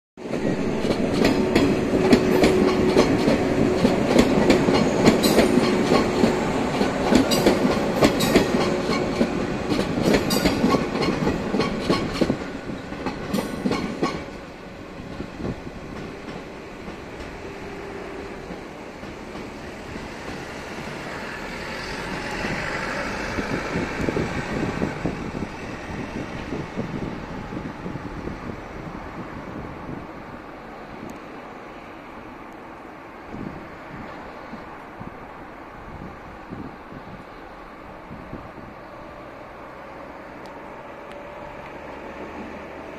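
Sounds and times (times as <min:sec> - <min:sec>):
train wheels clacking over joints: 0:00.2 - 0:14.4
train steady hum: 0:00.2 - 0:42.9.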